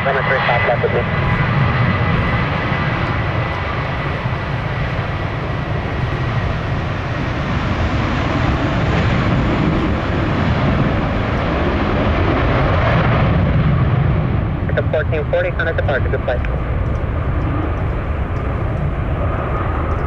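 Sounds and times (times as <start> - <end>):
jet engines roaring: 0.0 - 20.0
wind buffeting microphone: 0.0 - 20.0.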